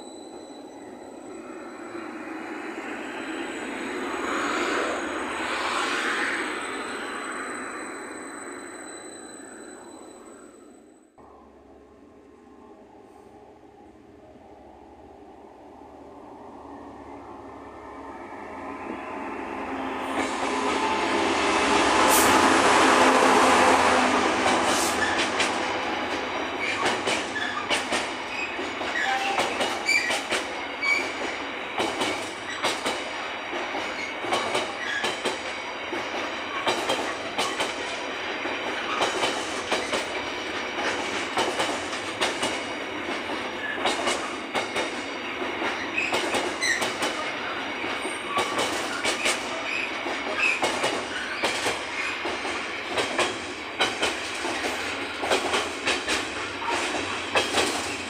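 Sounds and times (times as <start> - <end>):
high wheel squeals: 0.0 - 2.3, 6.2 - 11.0, 26.6 - 30.2
train wheels clattering over rail joints: 24.4 - 58.0.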